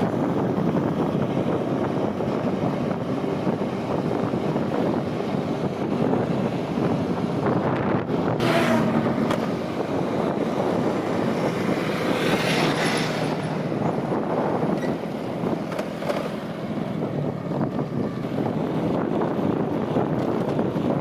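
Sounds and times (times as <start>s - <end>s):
highway vehicle noise: 0.0s - 21.0s
wind on microphone: 0.0s - 21.0s.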